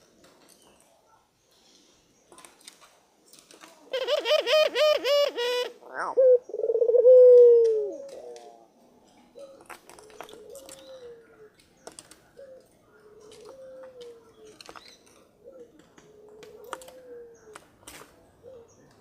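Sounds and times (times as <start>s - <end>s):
dove cooing: 3.9s - 8.7s, 9.4s - 11.6s, 12.2s - 14.6s, 15.2s - 17.6s, 18.3s - 18.9s.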